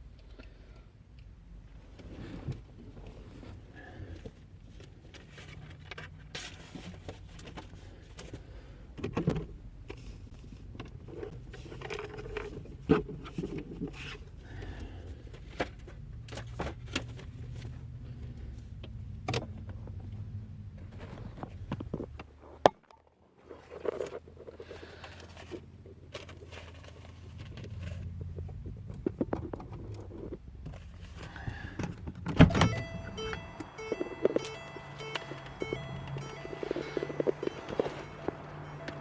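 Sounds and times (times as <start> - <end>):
low steady hum: 29.9 - 39.0.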